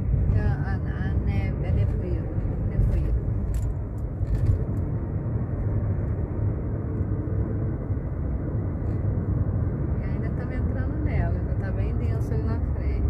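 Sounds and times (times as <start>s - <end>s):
car cabin road and engine rumble: 0.0s - 13.0s.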